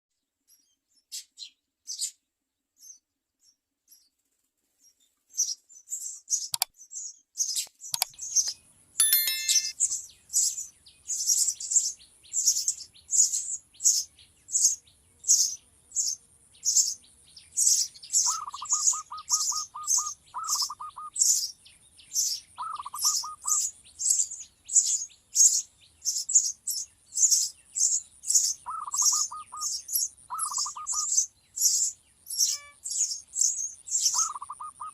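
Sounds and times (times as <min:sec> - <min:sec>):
baby sparrow chirping: 0:00.5 - 0:02.2, 0:10.4 - 0:34.9
rapid bird trill: 0:17.6 - 0:21.6, 0:22.6 - 0:23.7, 0:28.3 - 0:34.9.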